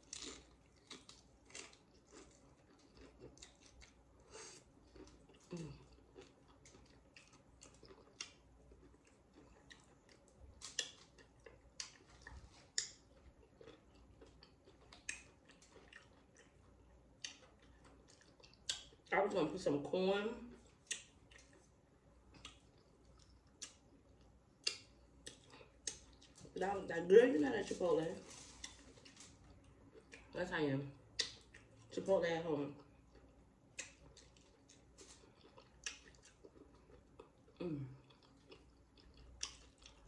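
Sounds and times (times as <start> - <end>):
crunching of tortilla chips: 0.0 - 19.1, 27.6 - 30.4, 33.1 - 40.0.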